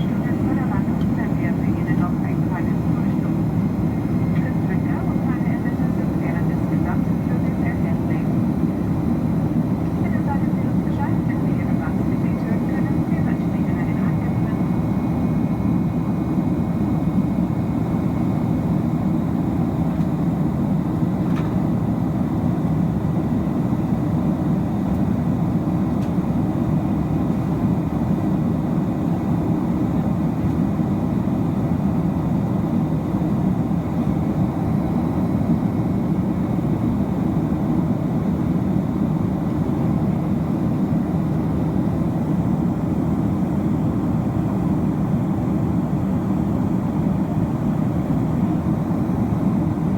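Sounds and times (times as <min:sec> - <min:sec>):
jet engines roaring in cabin: 0:00.0 - 0:49.9.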